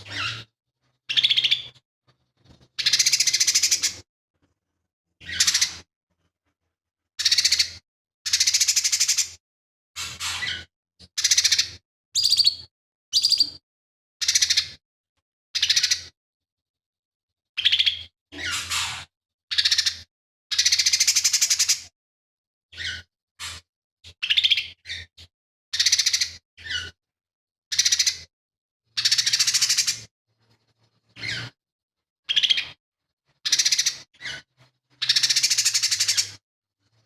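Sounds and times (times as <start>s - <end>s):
bird singing rough phrases: 0.0s - 4.0s.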